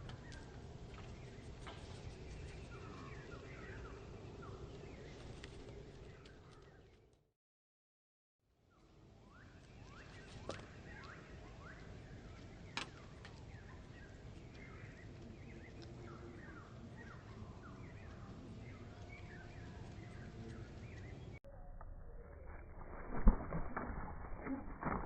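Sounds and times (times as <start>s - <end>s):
small birds chirping: 0.0s - 7.1s, 8.7s - 21.4s.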